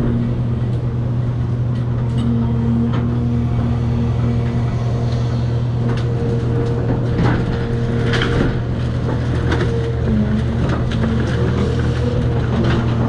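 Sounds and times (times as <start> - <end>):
excavator engine and hydraulics: 0.0 - 13.0
demolition debris cracks and knocks: 5.8 - 13.0.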